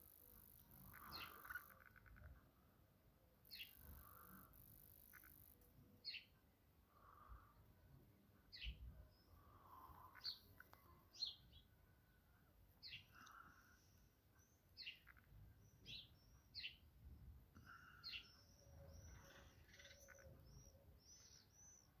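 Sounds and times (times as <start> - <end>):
faint low outdoor rumble: 0.0 - 22.0
birds chirping: 0.7 - 2.3, 8.4 - 11.8, 12.8 - 16.9, 17.6 - 22.0.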